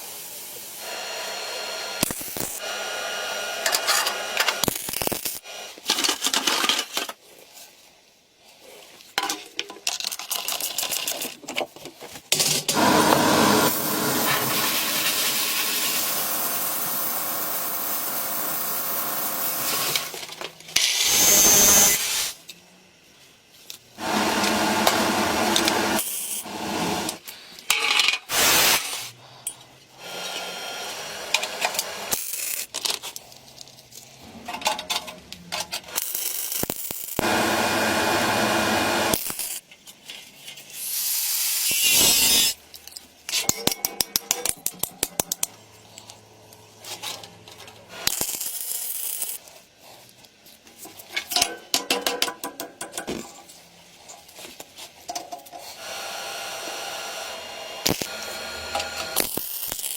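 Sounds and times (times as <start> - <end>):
small power tool running: 12.8 - 20.2, 24.0 - 27.2, 30.1 - 32.2, 37.2 - 39.2, 55.8 - 59.8.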